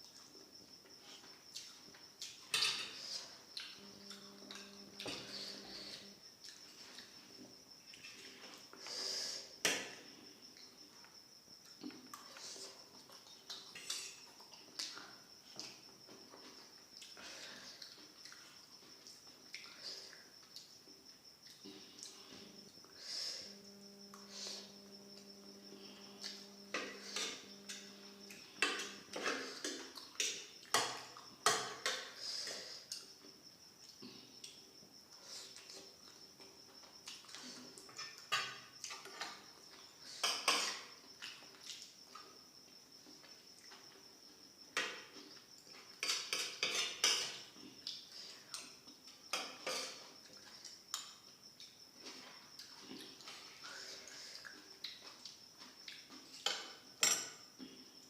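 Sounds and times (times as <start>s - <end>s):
cutlery clinking on a plate: 2.5s - 3.0s, 46.0s - 47.4s.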